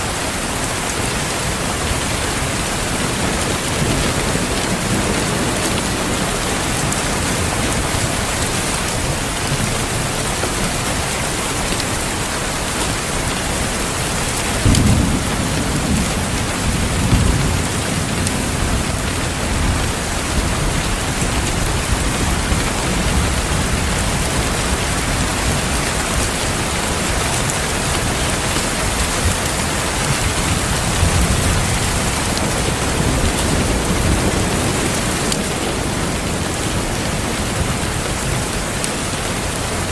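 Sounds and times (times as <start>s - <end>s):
heavy rain: 0.0s - 39.9s
thunder rolling: 13.1s - 27.2s, 28.0s - 39.9s.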